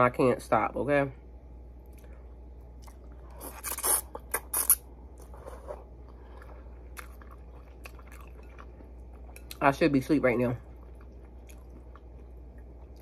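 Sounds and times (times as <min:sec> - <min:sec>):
chewing noodles: 0:06.0 - 0:09.6, 0:10.6 - 0:13.0.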